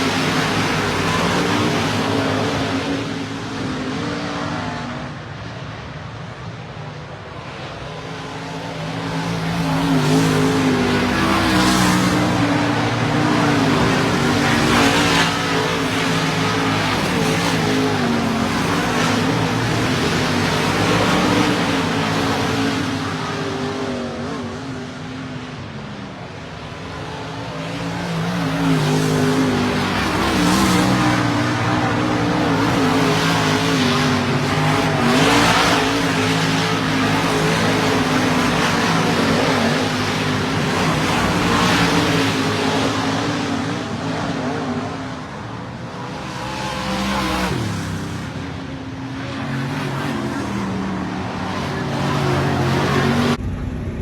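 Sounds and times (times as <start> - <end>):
race car engines at speed: 0.0 - 54.0.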